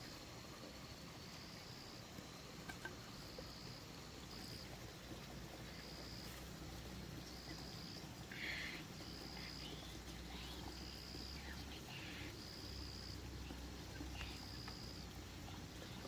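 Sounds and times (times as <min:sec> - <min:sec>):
low background rumble: 0:00.0 - 0:16.0
insect trilling: 0:00.9 - 0:16.0
faint clicks: 0:13.5 - 0:16.0.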